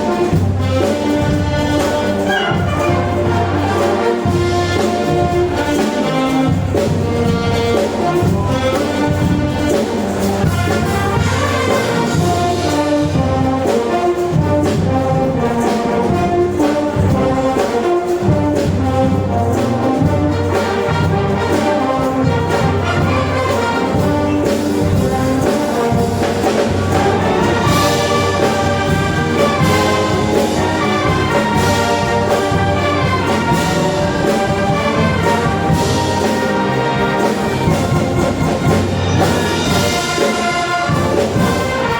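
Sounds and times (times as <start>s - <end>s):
brass band playing: 0.0s - 41.9s.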